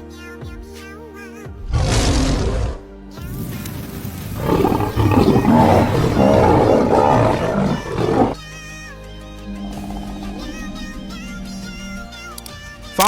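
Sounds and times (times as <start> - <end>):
background music: 0.0 - 13.0
big cat roaring: 1.6 - 2.9, 4.4 - 8.4, 9.4 - 12.4.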